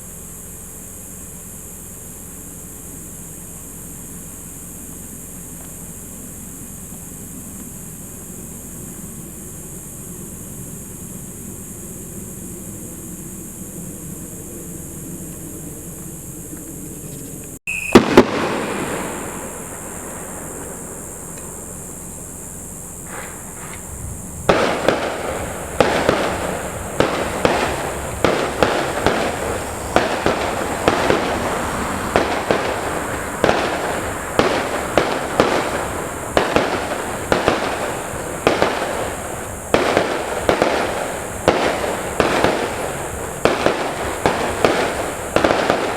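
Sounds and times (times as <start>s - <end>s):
steady background noise: 0.0s - 45.9s
firework crackling: 17.6s - 45.9s
firework shell bursts: 17.6s - 45.9s.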